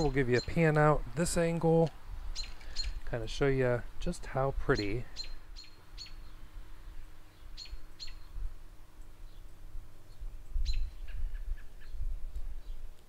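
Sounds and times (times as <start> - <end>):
small bird chirping: 2.3 - 3.1, 4.7 - 13.0.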